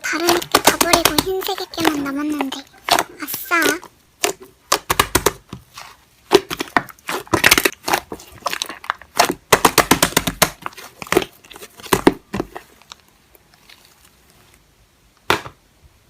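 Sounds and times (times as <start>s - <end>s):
slime squishing with sticky pops: 0.0s - 14.6s.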